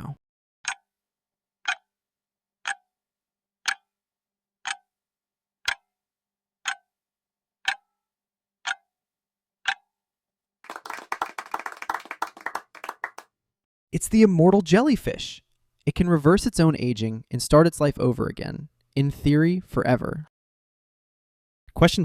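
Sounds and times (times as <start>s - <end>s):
countdown timer ticking: 3.6s - 3.9s
applause sound effect: 10.6s - 13.2s.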